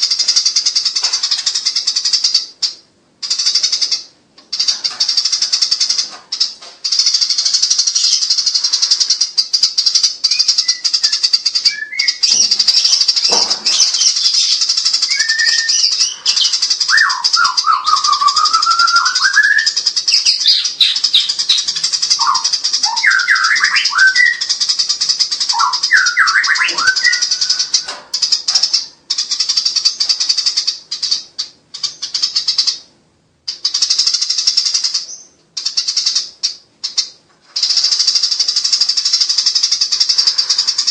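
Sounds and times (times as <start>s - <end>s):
sparrows chattering: 0.0s - 40.9s
low whistled sliding bird notes: 15.0s - 19.8s.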